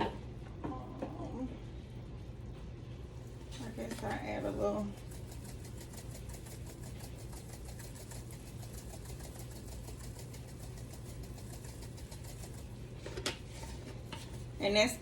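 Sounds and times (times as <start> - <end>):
small motor humming and ticking: 3.6 - 13.3.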